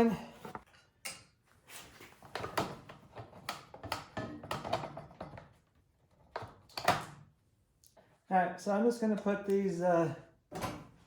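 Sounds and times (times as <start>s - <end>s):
snowblower parts clicking and knocking: 2.4s - 5.6s.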